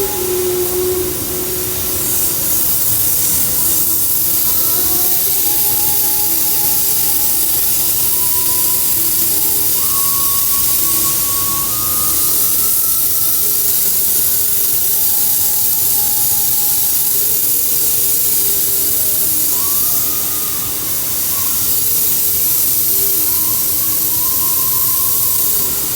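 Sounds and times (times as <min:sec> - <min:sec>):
hot-air welding gun hissing: 0:00.0 - 0:25.9.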